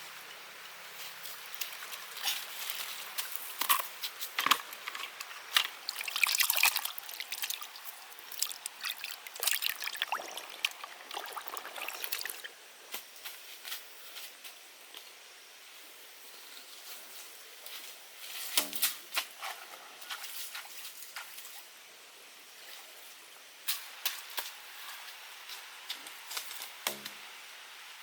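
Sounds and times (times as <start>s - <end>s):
water splashing and trickling: 4.8s - 12.6s
water dripping: 5.6s - 12.5s.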